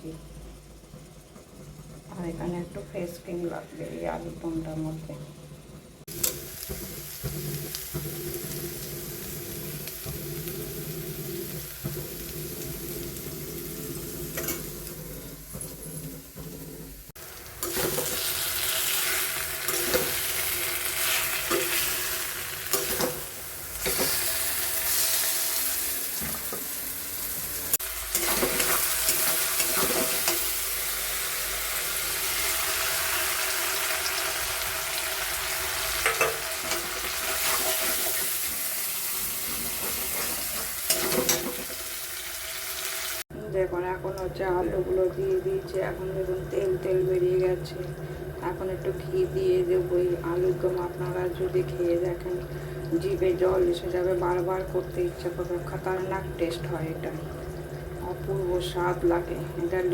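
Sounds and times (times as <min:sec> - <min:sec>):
food sizzling in oil: 0:06.0 - 0:43.3
spatula scraping a pan: 0:39.3 - 0:41.7.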